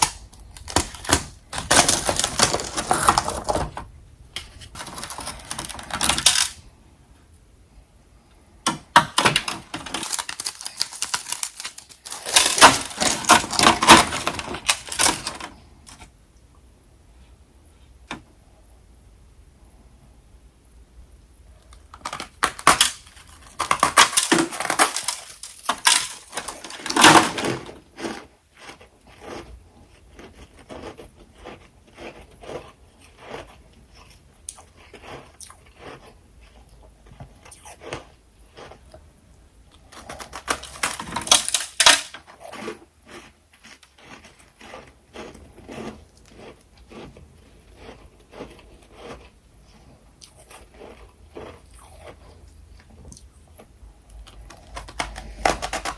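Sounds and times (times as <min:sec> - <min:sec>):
frost being crunched and chewed: 0:09.4 - 0:16.0, 0:21.7 - 0:27.1, 0:27.9 - 0:39.0, 0:39.7 - 0:49.4.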